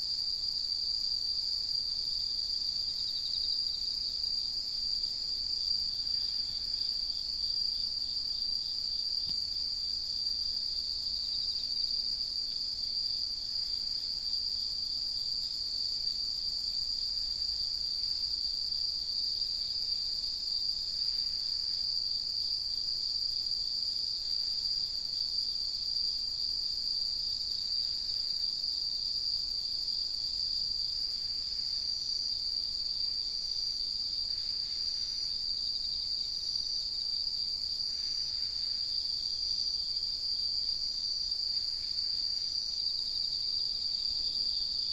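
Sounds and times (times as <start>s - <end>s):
insects trilling: 0.0s - 44.9s
soft insect chirps: 27.0s - 44.9s.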